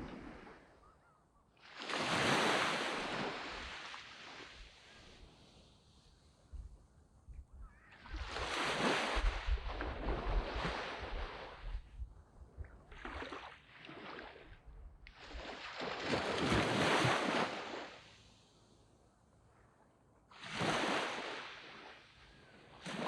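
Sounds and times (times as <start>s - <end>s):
waves washing up a beach: 0.0s - 0.7s, 1.6s - 6.4s, 7.9s - 11.9s, 12.9s - 18.6s, 20.3s - 23.0s.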